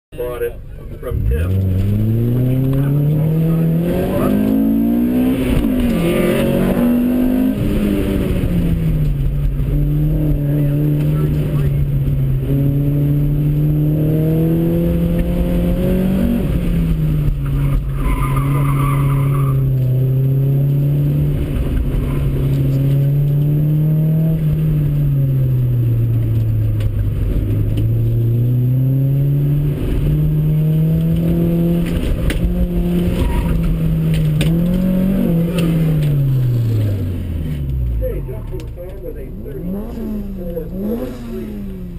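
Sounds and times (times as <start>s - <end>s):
car engine revving: 0.2s - 41.9s
tire squeal: 17.4s - 19.8s, 21.8s - 22.5s, 33.0s - 33.8s.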